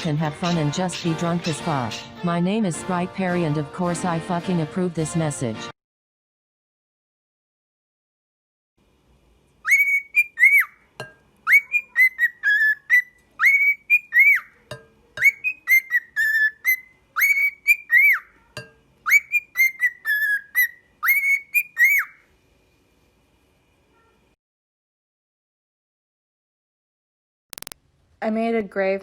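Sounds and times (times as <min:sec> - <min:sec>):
parrot whistling a tune: 0:09.6 - 0:10.8, 0:11.4 - 0:14.6, 0:15.2 - 0:18.3, 0:19.0 - 0:22.3.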